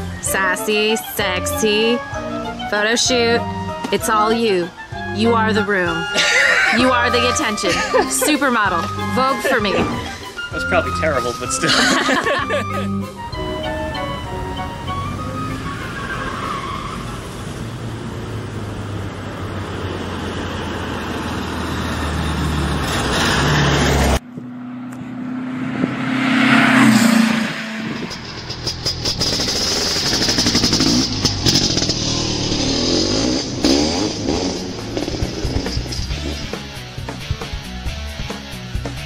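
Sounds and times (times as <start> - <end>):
vehicle driving past: 12.4 - 36.8
car engine running: 23.9 - 38.9.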